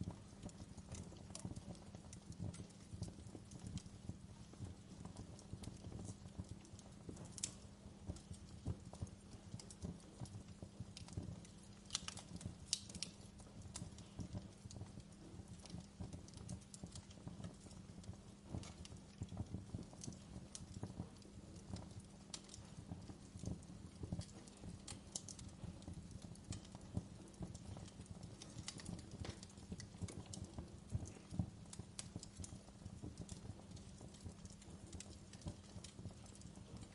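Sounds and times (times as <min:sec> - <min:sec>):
sharp pops of fire: 0:00.0 - 0:36.9
wood fire crackling: 0:00.0 - 0:36.9.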